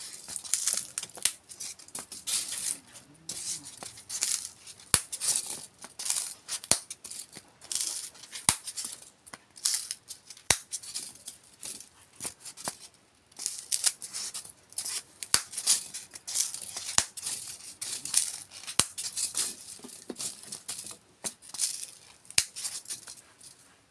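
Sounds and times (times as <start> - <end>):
styrofoam crunching: 0.0 - 9.0.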